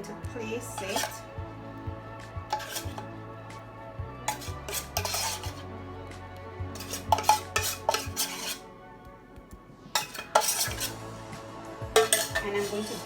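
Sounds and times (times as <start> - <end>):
faint background music: 0.0 - 13.0
utensil scraping: 0.8 - 1.3, 2.4 - 3.1, 4.3 - 5.6, 6.8 - 8.6, 10.0 - 11.0, 12.0 - 13.0
utensils and dishes clinking: 0.8 - 1.3, 2.5 - 3.1, 4.3 - 5.6, 6.8 - 8.6, 10.0 - 11.0, 12.0 - 13.0.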